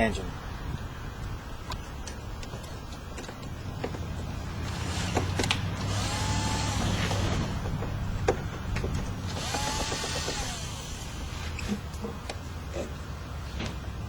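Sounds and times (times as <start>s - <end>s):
sharp clicks and knocks: 1.7s - 10.8s
power drill spinning: 4.6s - 7.8s, 9.1s - 11.8s.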